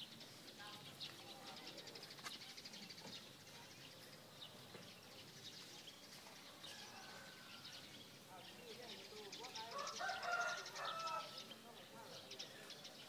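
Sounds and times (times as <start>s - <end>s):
small birds chirping and trilling: 0.0s - 13.0s.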